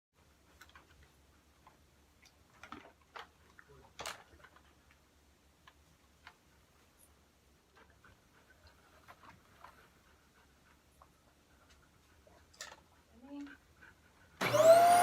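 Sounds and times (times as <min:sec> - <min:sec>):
faint clicks and taps: 0:00.2 - 0:07.0.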